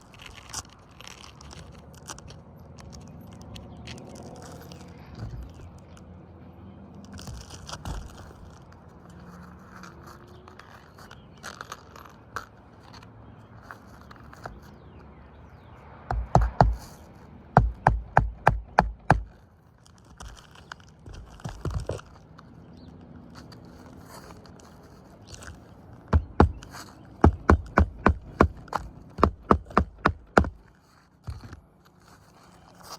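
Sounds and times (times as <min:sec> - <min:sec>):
shingles scraping and rustling: 0:00.0 - 0:06.0, 0:07.0 - 0:14.9, 0:19.0 - 0:32.9
hammer strikes: 0:16.1 - 0:16.9, 0:17.6 - 0:19.3.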